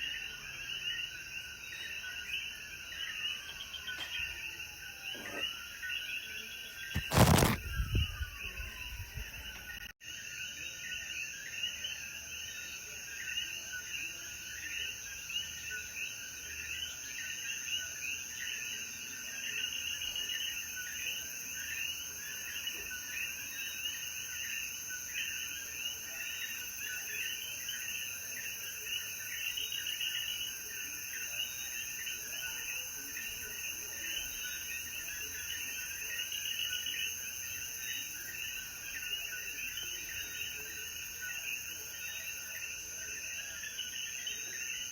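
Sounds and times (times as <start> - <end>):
frogs calling: 0.0 - 18.6.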